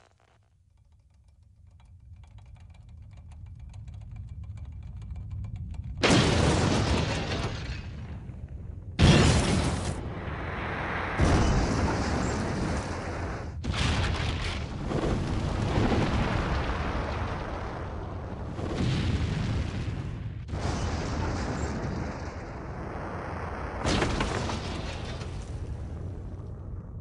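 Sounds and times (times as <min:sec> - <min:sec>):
explosion blasts rumbling: 0:06.0 - 0:27.0.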